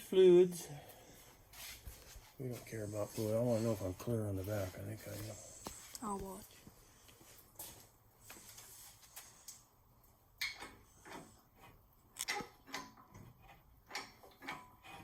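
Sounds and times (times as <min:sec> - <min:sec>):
clicks and knocks of metal parts: 0:12.1 - 0:15.0.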